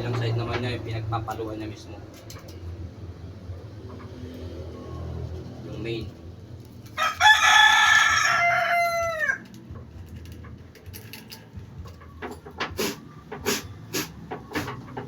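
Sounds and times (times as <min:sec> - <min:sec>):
rooster crowing: 0:07.0 - 0:09.4.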